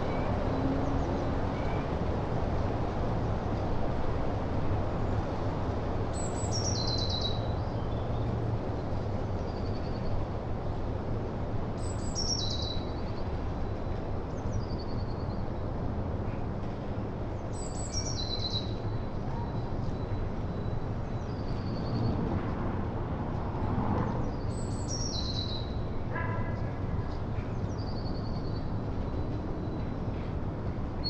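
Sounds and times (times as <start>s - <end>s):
songbird singing: 6.1s - 8.1s, 11.8s - 15.5s, 17.5s - 22.2s, 24.1s - 26.7s.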